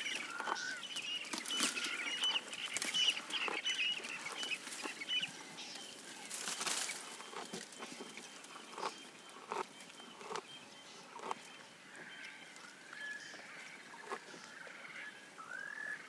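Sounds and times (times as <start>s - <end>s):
rustling leaves: 0.0s - 9.4s
faint birds whistling: 0.0s - 16.0s
giraffe crunching chews: 6.2s - 14.4s.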